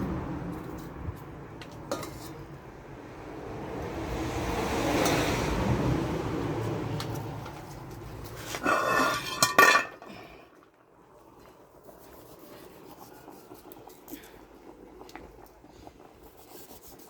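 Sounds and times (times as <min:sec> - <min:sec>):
pots and dishes clattering: 0:01.9 - 0:02.4, 0:08.5 - 0:10.4.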